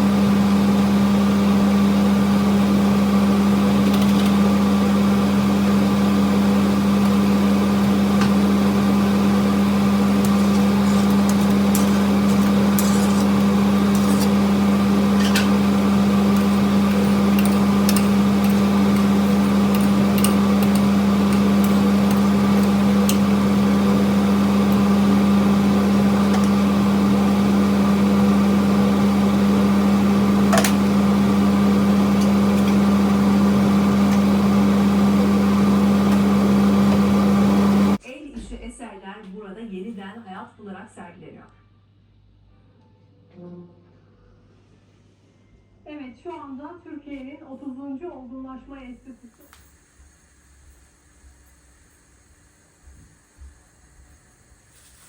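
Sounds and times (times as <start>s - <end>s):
motor humming: 0.0s - 38.0s.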